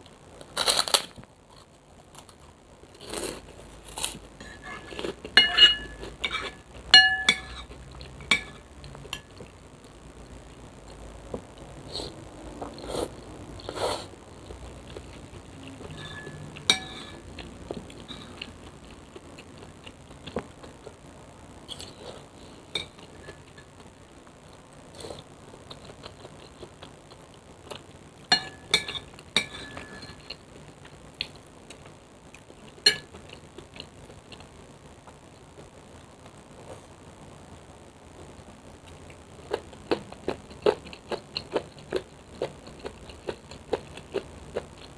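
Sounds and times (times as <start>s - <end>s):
cutlery clinking against bowl: 4.4s - 9.4s, 15.8s - 17.2s, 28.3s - 30.4s, 32.8s - 33.2s
eating noises: 10.8s - 28.0s, 38.2s - 44.9s.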